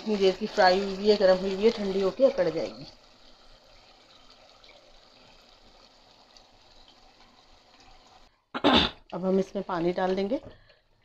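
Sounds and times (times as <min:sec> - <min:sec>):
curry sizzling in oil: 0:00.0 - 0:11.0.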